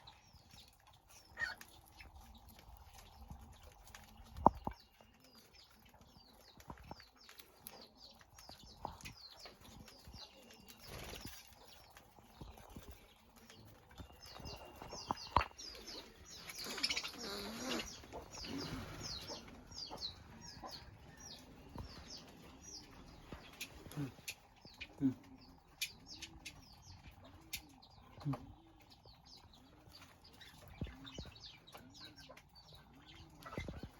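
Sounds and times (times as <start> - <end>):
birds chirping and chattering: 0.0 - 33.9
wing flapping and rustling: 8.3 - 19.8.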